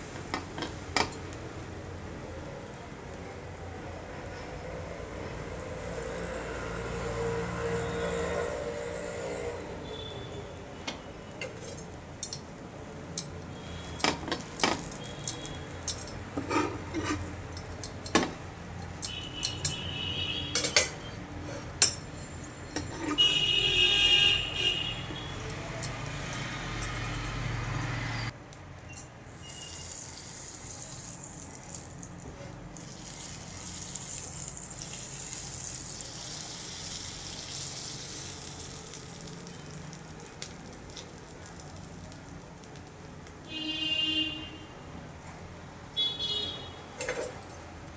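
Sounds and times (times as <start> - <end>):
frying sizzle on griddle pan: 0.0 - 2.4, 11.5 - 16.2, 29.3 - 43.5
utensils clinking against dishes: 13.2 - 19.9, 20.5 - 23.3, 47.0 - 47.7.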